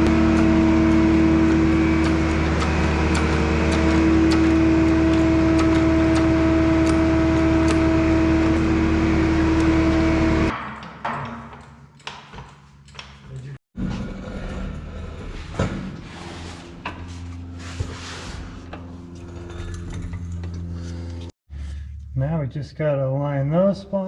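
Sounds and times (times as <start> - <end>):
machine motor humming: 0.0 - 10.5.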